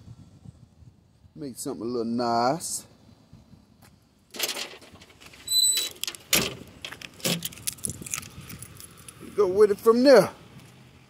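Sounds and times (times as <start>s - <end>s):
brief high squeak: 5.4s - 6.0s.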